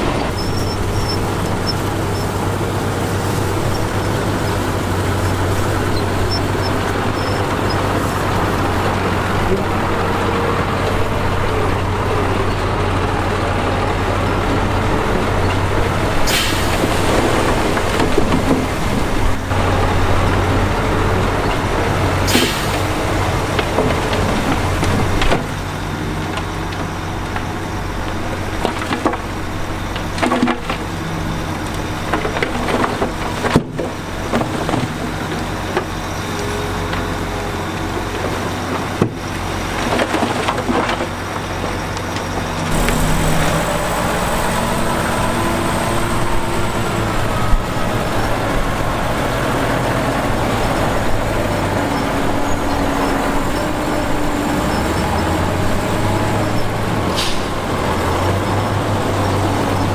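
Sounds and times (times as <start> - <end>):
diesel construction machinery running: 0.0 - 59.9
short air hisses: 16.2 - 17.1, 22.3 - 22.9.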